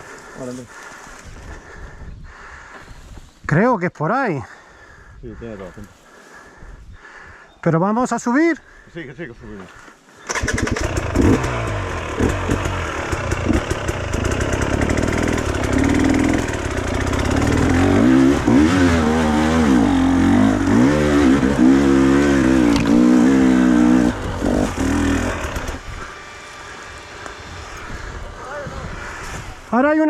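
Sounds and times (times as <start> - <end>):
motorcycle engine revving: 10.3 - 29.3.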